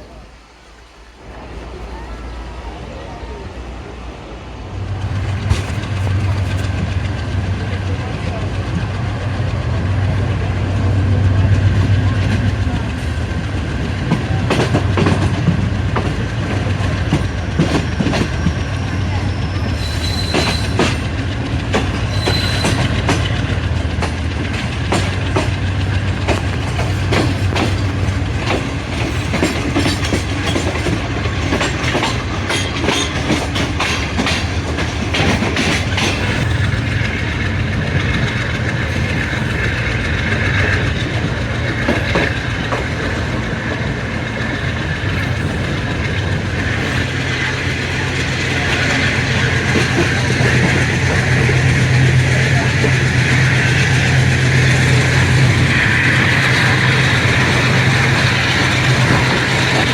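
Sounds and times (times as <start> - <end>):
train wheels clicking over rail joints: 4.8 - 59.9
locomotive diesel drone: 36.3 - 59.9.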